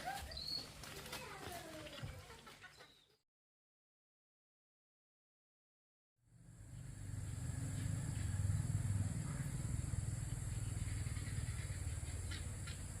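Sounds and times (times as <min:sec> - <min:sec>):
engine rumbling: 0:06.2 - 0:13.0.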